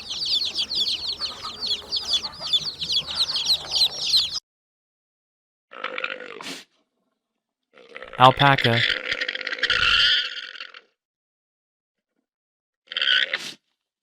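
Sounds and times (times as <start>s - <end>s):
chicks peeping: 0.0s - 4.4s.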